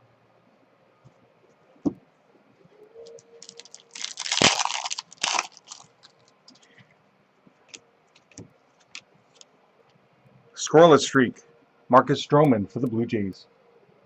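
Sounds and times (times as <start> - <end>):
foil wrapper crinkling and tearing: 3.4 - 6.3.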